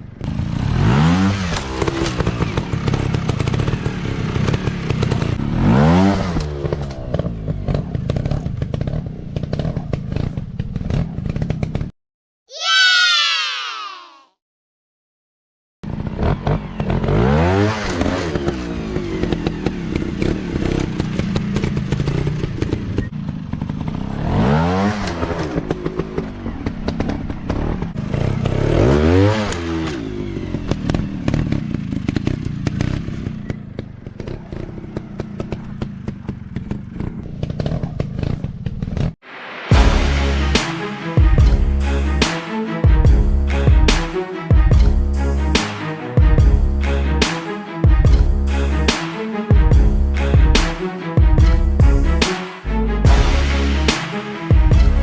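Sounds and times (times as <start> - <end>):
dirt bike engines revving: 0.3 - 11.5.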